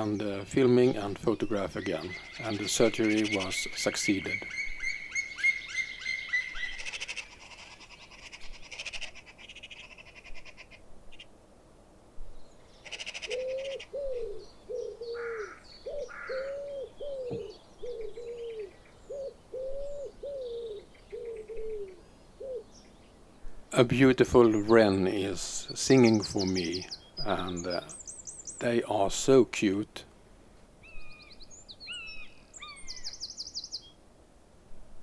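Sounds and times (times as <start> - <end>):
small birds chirping and trilling: 0.0 - 11.3, 12.4 - 29.9, 30.8 - 34.0
low bird cooing: 2.0 - 10.8, 12.8 - 22.9.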